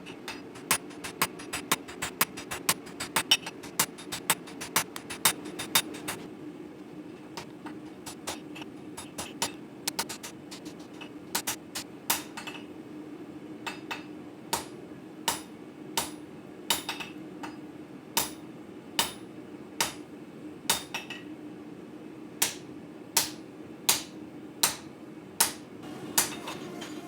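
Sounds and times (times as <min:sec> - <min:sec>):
steady low hum: 0:00.0 - 0:12.4
hammer striking steel on anvil: 0:25.4 - 0:27.0.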